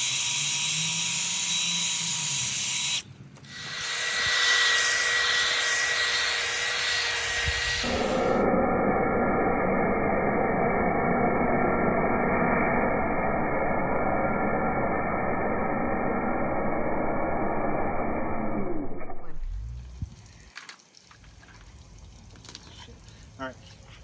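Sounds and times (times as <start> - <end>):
muffled pressure washer running: 3.6 - 16.4.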